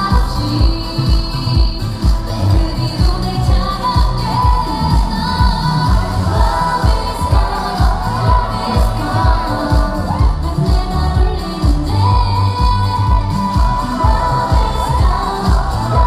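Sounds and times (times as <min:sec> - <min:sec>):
pop backing track with kick drum: 0:00.0 - 0:16.0
women singing: 0:00.0 - 0:16.0.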